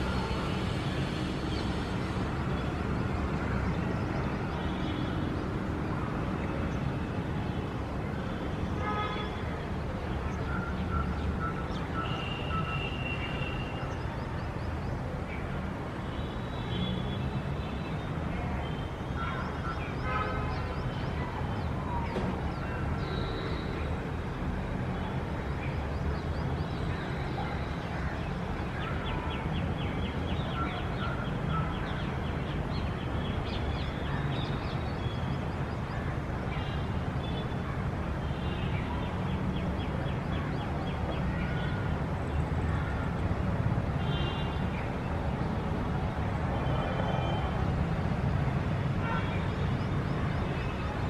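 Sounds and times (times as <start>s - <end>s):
city traffic hum: 0.0s - 51.0s.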